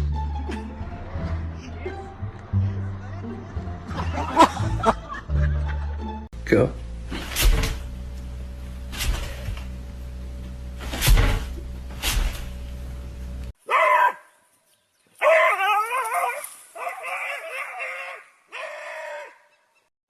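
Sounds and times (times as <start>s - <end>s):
steady hum: 6.4s - 13.6s.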